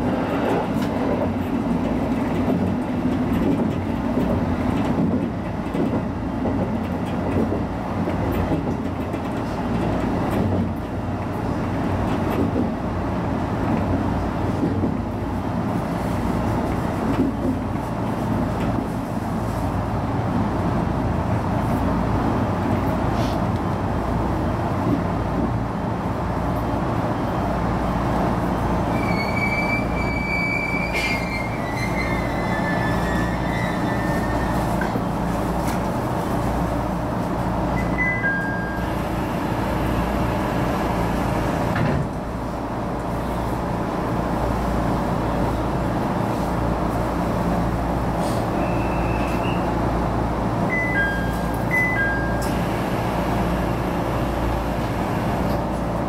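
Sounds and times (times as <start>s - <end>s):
railcar rumbling along track: 0.0s - 56.0s
high wheel squeal: 28.8s - 34.8s
short squeaks: 28.9s - 34.7s.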